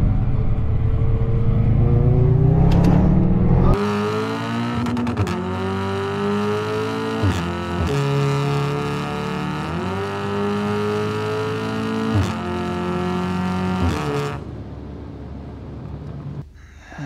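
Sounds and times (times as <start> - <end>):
car engine accelerating: 0.0 - 16.4
gear upshifts: 0.4 - 9.0.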